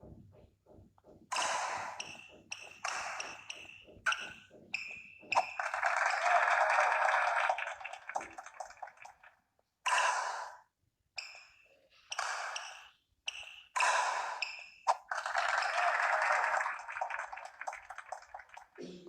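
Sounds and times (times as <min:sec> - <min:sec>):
sneaker squeaks on court floor: 0:02.0 - 0:05.6, 0:11.2 - 0:13.7.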